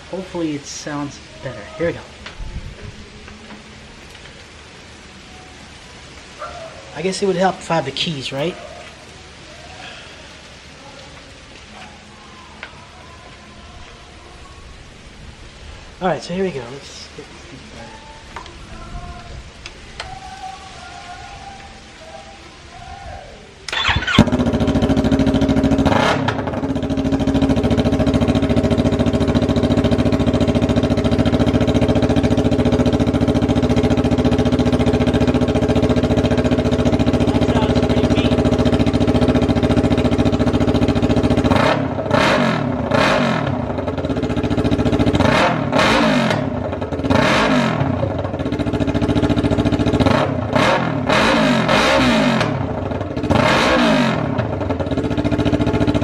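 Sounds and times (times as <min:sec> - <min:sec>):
motorcycle engine idling and revving: 0:23.7 - 0:56.0.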